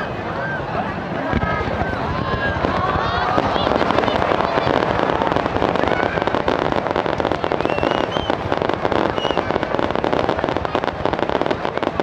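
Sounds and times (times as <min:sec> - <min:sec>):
fireworks bursting and crackling: 0:00.0 - 0:12.0
firework whistles: 0:03.4 - 0:10.1.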